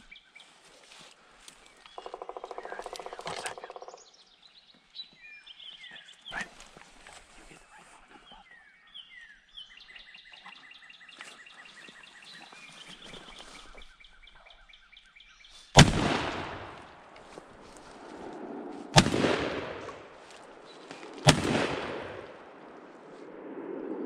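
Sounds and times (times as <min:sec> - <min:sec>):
small birds chirping: 0:00.0 - 0:15.8
loud echoing gunshot: 0:15.8 - 0:17.2, 0:18.9 - 0:22.9.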